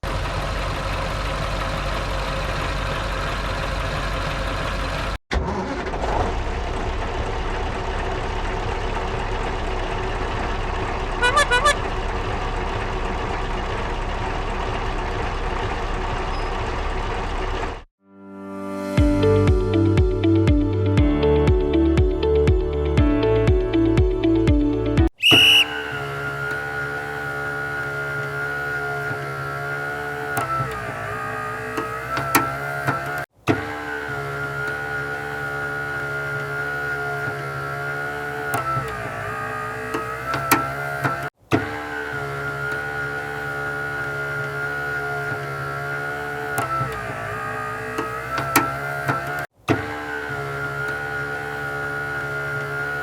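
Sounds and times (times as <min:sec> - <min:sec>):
motor humming: 0:25.3 - 0:53.0.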